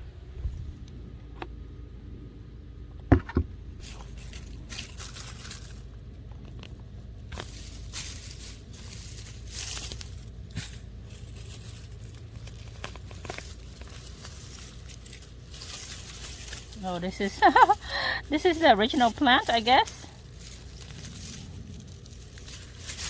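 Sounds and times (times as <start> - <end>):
soil and roots crunching: 3.0 - 23.0
loud knock: 3.1 - 3.5.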